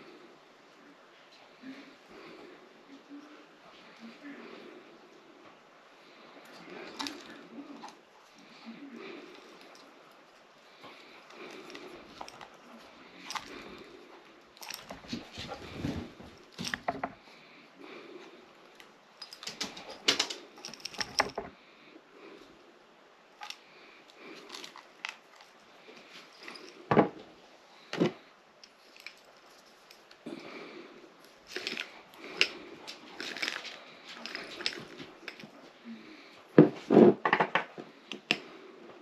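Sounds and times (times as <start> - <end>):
small metal pieces rattling: 19.2 - 21.5, 33.2 - 35.5.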